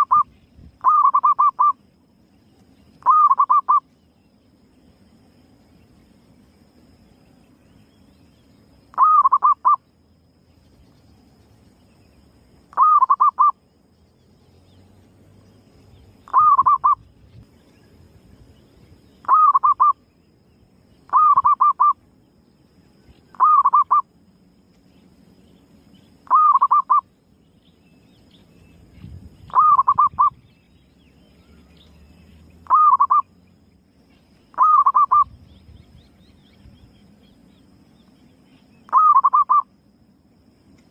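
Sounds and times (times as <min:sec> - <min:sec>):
dove trilled cooing: 0:00.0 - 0:01.8, 0:03.0 - 0:03.8, 0:08.9 - 0:09.8, 0:12.7 - 0:13.6, 0:16.2 - 0:17.1, 0:19.2 - 0:20.0, 0:21.1 - 0:22.0, 0:23.3 - 0:24.0, 0:26.2 - 0:27.1, 0:29.4 - 0:30.5, 0:32.6 - 0:33.3, 0:34.5 - 0:35.4, 0:38.9 - 0:39.7.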